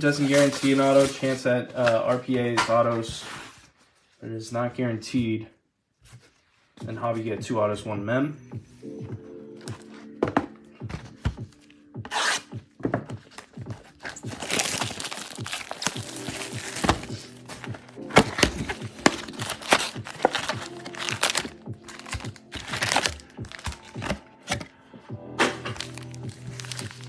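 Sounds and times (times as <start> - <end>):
plastic wrapping tearing and crinkling: 0.0 - 2.2, 13.3 - 24.7, 25.4 - 27.0
background music: 0.0 - 3.2, 6.7 - 27.0.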